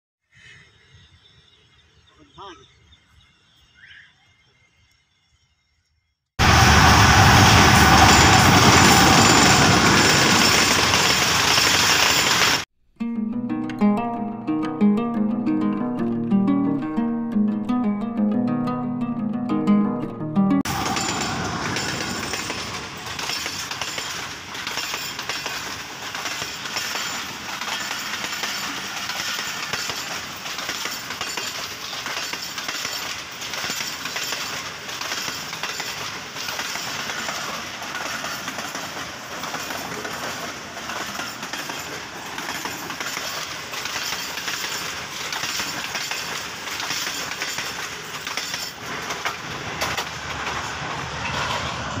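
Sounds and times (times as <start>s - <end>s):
train running rumble: 6.4s - 12.6s, 20.7s - 52.0s
train wheels clattering over rail joints: 6.4s - 12.6s, 20.7s - 52.0s.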